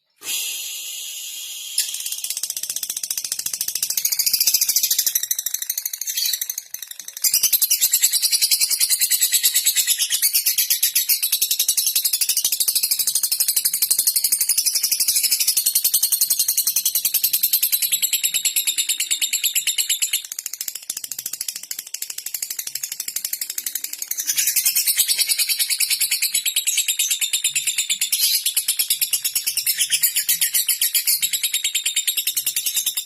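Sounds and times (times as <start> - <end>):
lovebird clicking chatter: 1.6 - 8.6.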